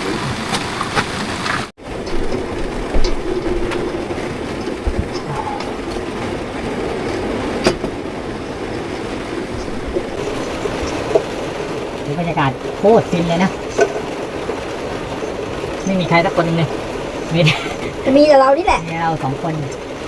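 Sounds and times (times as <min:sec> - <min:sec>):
heavy rain on vehicle roof: 0:00.0 - 0:20.0.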